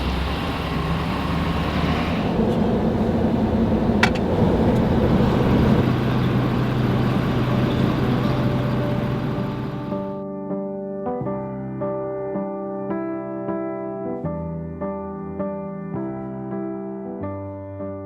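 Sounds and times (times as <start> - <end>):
truck engine and road noise: 0.0 - 10.2.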